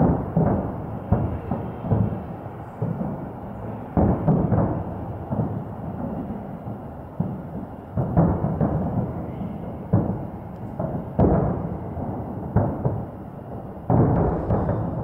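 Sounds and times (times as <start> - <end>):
firework shells booming: 13.9 - 15.0.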